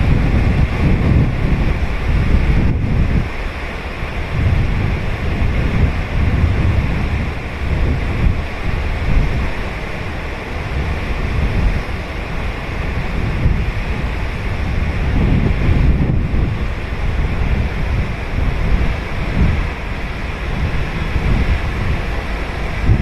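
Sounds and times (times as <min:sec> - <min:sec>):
ocean waves breaking on beach: 0:00.0 - 0:23.0
wind buffeting microphone: 0:00.0 - 0:23.0.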